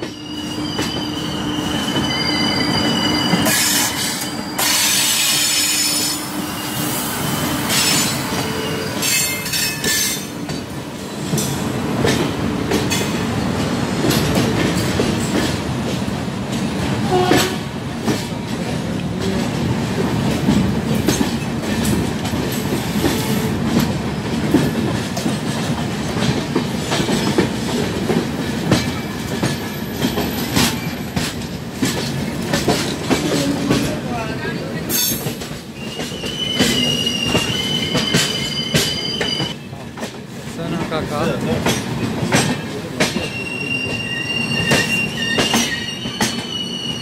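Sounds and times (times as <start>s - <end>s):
train rumble: 0.0s - 47.0s.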